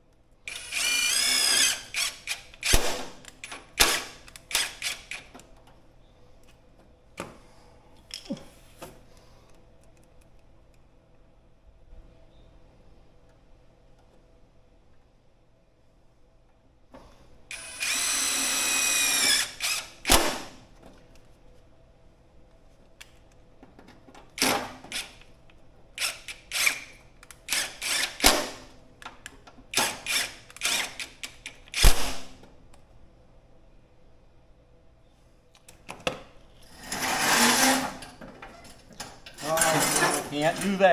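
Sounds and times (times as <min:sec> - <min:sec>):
power drill running: 0:00.5 - 0:02.8, 0:17.5 - 0:20.0, 0:27.5 - 0:28.2.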